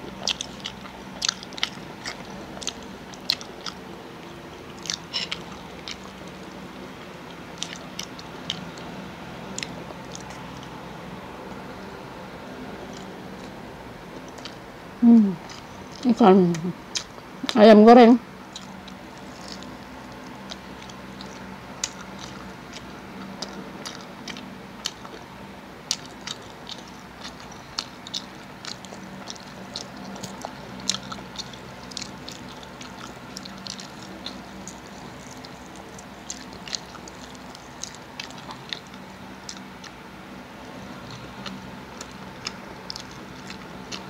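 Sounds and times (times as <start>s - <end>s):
crunchy chewing of fried chicken: 0.0s - 17.6s, 18.2s - 44.0s.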